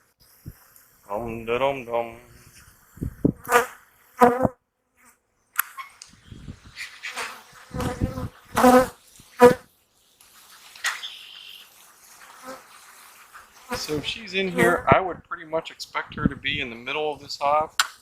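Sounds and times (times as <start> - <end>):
honeybees buzzing: 7.0 - 9.6, 11.1 - 14.8.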